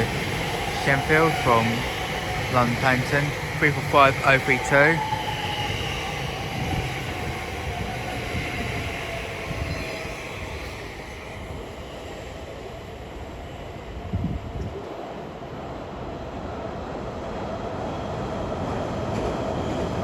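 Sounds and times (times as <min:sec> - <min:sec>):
electric traction whine: 0:00.0 - 0:12.1
train wheels rumbling on rails: 0:00.0 - 0:15.6.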